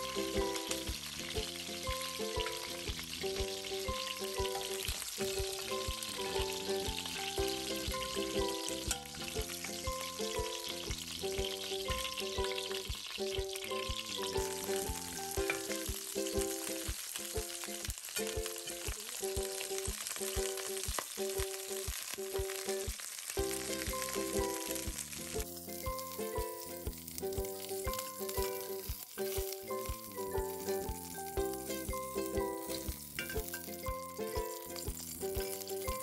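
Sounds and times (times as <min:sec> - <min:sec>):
background music with steady beat: 0:00.0 - 0:36.0
vegetables sizzling in a pan: 0:00.0 - 0:36.0.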